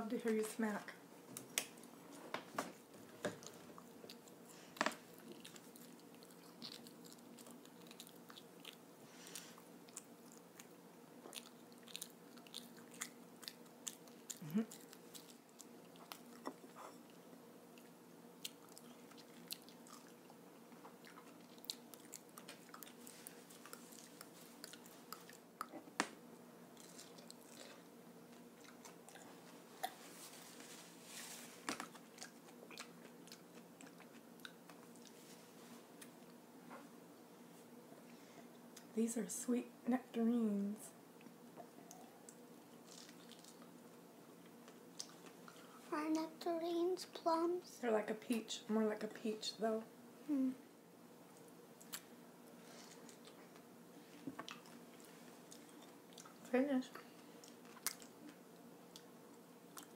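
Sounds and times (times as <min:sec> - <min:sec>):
faint steady hum: 0:00.0 - 0:59.9
child chewing and smacking: 0:01.3 - 0:37.3, 0:41.2 - 0:46.3, 0:51.2 - 0:59.9.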